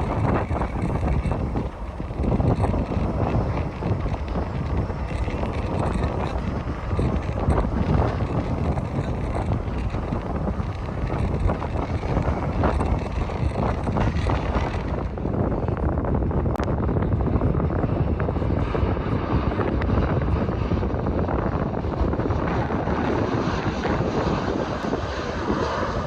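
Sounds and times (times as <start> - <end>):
jet engines rumbling: 0.0 - 26.0
wind on microphone: 0.0 - 26.0.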